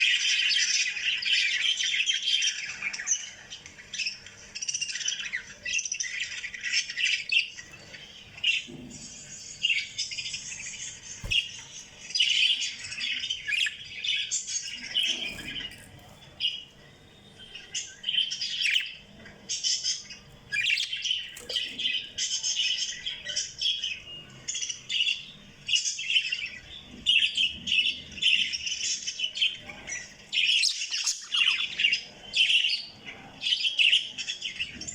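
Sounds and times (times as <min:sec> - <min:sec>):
parrots chirping and squawking: 0:04.8 - 0:24.0, 0:27.2 - 0:32.9.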